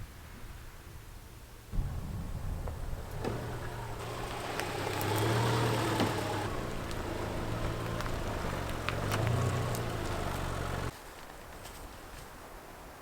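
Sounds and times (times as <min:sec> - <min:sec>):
low engine hum: 0:01.8 - 0:10.9
light clicks: 0:03.1 - 0:10.9.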